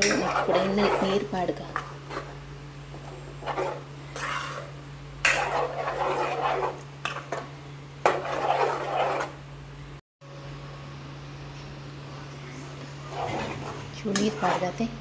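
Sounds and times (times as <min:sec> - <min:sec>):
spoon scraping in a pot: 0:00.0 - 0:09.4, 0:13.1 - 0:14.9.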